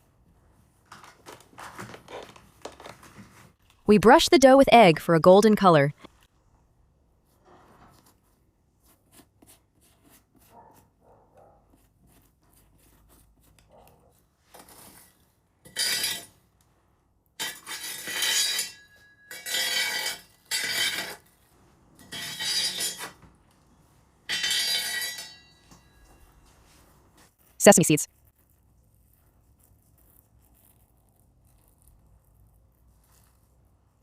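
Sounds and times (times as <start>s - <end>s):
utensil scraping and clinking bowl: 17.4s - 23.2s, 24.3s - 26.3s.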